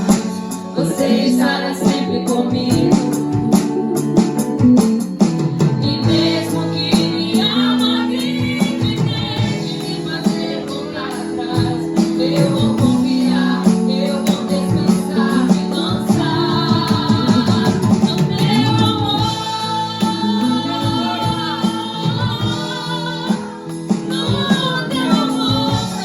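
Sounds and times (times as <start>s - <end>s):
woman singing: 0.0s - 26.0s
worship band playing: 0.0s - 26.0s.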